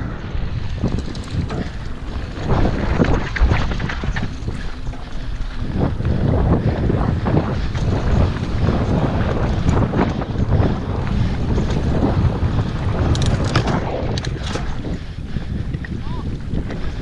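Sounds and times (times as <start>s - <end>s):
bike tyres rumbling on dirt: 0.0s - 17.0s
wind buffeting microphone: 0.0s - 17.0s
bike rattling and knocking: 0.5s - 17.0s.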